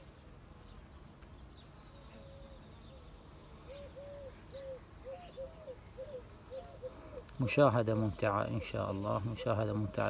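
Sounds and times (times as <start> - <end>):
small birds chirping: 0.0 - 10.0
dove cooing: 3.7 - 7.3.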